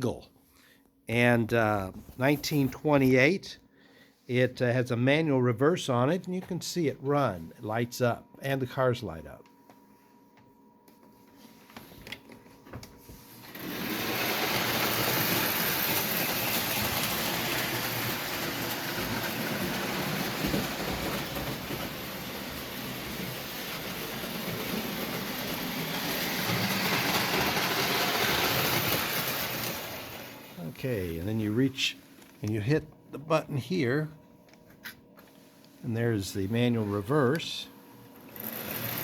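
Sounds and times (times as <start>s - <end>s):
toy train motor whirring: 13.4s - 30.5s, 38.2s - 39.0s.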